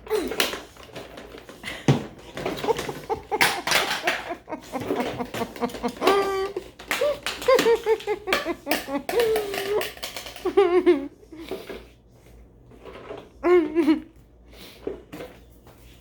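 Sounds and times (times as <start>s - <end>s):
person laughing and giggling: 1.6s - 11.7s, 13.4s - 14.2s.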